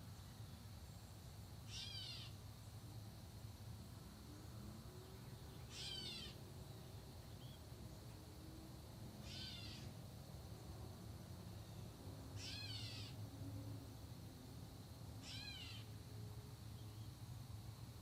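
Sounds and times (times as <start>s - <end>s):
bird downward-slurred call: 1.7s - 2.4s, 5.7s - 6.4s, 9.2s - 9.9s, 12.4s - 13.2s, 15.2s - 15.9s.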